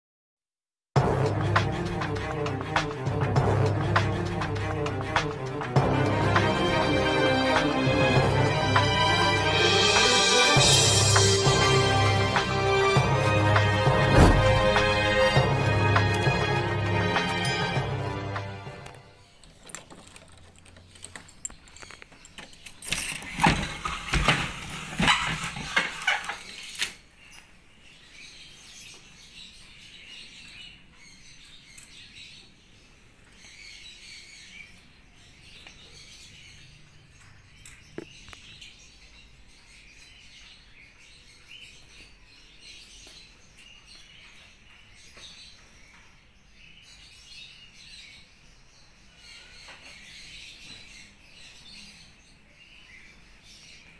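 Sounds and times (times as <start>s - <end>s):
small birds chirping: 19.0s - 24.2s, 25.0s - 53.9s.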